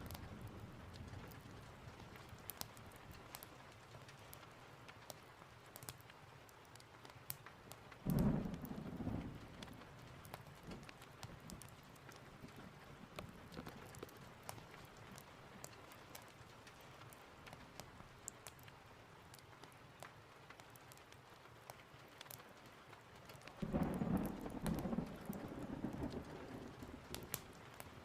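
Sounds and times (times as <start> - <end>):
rain falling: 0.0 - 28.0
thunder rumbling: 8.0 - 14.0, 23.6 - 28.0.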